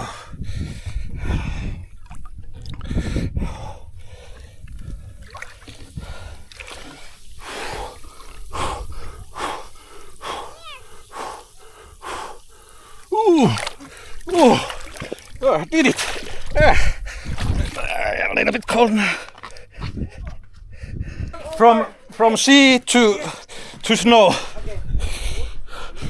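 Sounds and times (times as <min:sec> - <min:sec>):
person gasping sharp breaths: 0:00.0 - 0:01.8, 0:06.0 - 0:17.8
wind rumbling on microphone: 0:00.0 - 0:18.5, 0:19.6 - 0:21.6, 0:24.6 - 0:26.0
water splashing: 0:01.3 - 0:03.0, 0:03.9 - 0:20.6.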